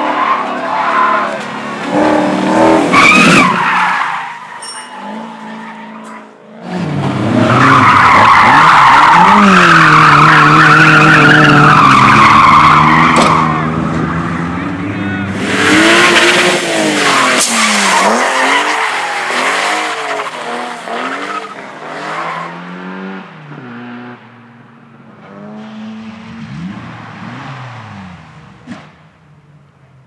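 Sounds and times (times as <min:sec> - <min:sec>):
tyres skidding: 0:00.0 - 0:30.0
race car engine revving: 0:01.2 - 0:03.6, 0:06.5 - 0:24.3.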